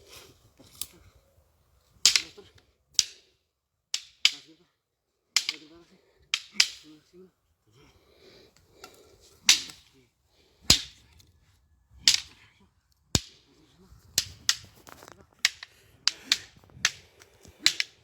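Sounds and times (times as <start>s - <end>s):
fighting sticks clacking: 2.0s - 3.3s, 4.0s - 4.6s, 5.4s - 7.1s, 9.4s - 9.9s, 10.7s - 11.1s, 12.0s - 12.4s, 13.2s - 13.5s, 14.2s - 14.8s, 15.4s - 18.0s.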